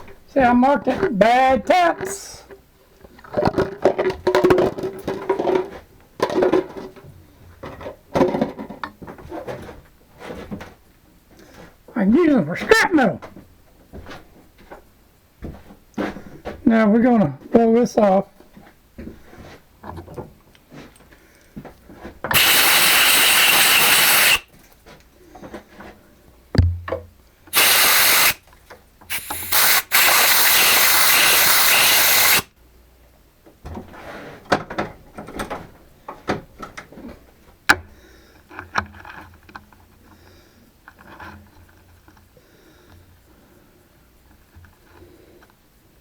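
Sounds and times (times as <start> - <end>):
compressed air hissing blasts: 22.3 - 24.5, 27.5 - 28.4, 29.1 - 32.5
metal part clicks and knocks: 26.6 - 27.1.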